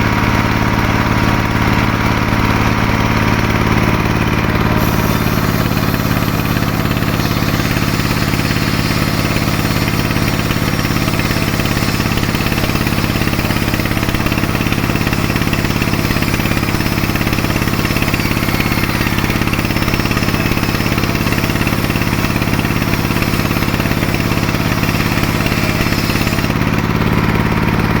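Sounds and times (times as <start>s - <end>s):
sawmill engine running: 0.1s - 28.0s.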